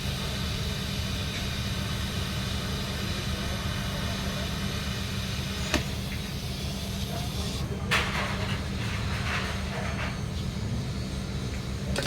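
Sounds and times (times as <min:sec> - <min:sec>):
welding equipment hum: 0:00.0 - 0:09.1.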